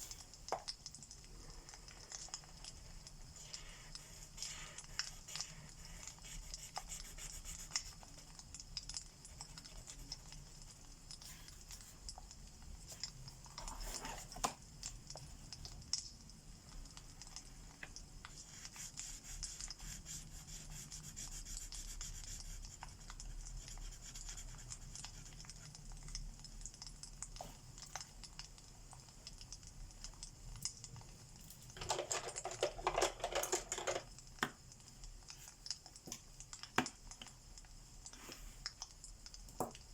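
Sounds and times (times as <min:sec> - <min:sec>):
markers scratching on paper: 0:03.4 - 0:08.3, 0:18.4 - 0:22.6
fireplace crackling and popping: 0:33.7 - 0:39.9.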